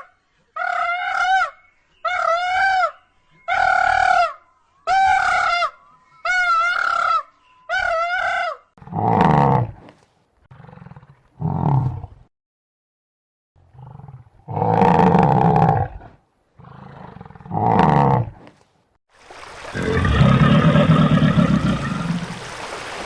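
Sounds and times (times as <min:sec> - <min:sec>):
high-pitched animal calls: 0:00.6 - 0:08.7
large animal roaring: 0:13.7 - 0:18.4, 0:19.7 - 0:22.3.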